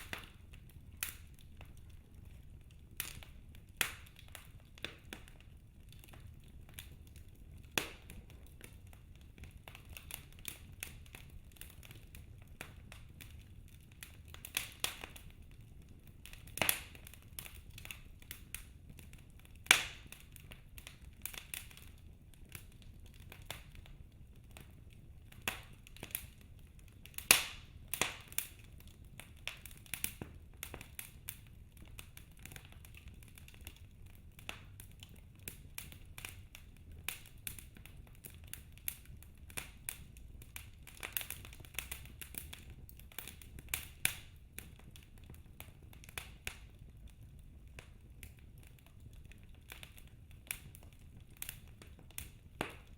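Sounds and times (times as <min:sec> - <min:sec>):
logs crackling and popping: 0:00.0 - 0:52.9.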